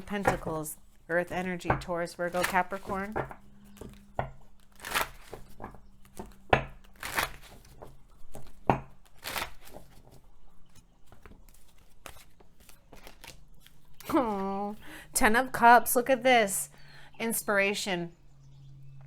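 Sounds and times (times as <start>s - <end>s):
cards being shuffled: 2.2s - 14.6s.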